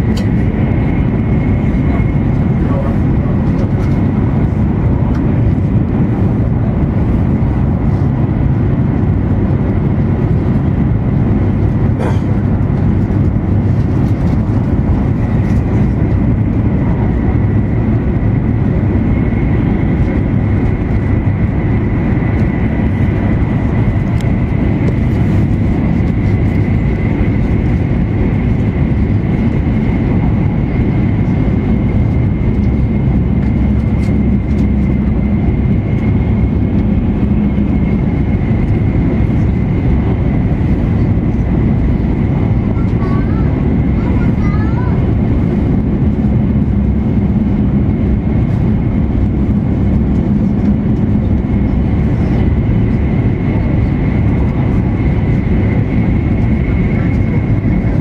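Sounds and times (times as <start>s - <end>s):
train cabin low rumble: 0.0s - 58.0s.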